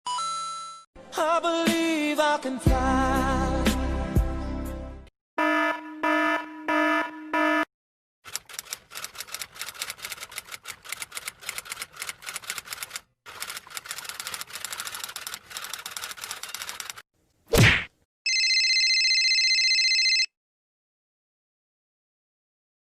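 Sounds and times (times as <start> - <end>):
typewriter keys clattering: 8.3 - 17.0.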